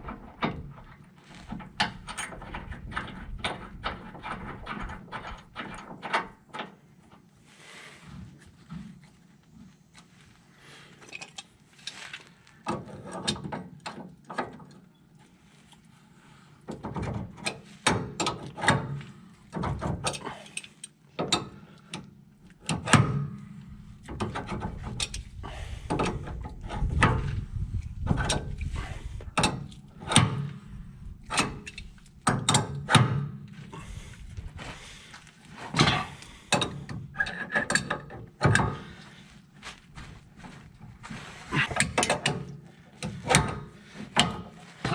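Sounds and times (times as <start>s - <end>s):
metal tools clicking and clanking: 35.7s - 38.9s.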